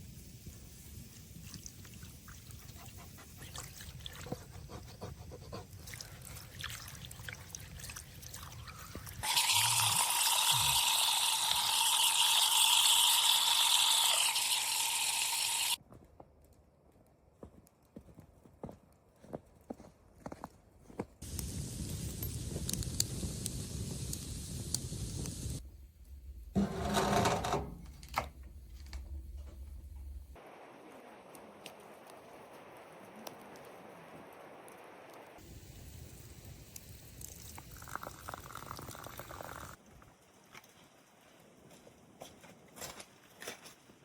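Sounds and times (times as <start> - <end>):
water pouring in a stream: 5.8 - 15.8, 36.8 - 39.8.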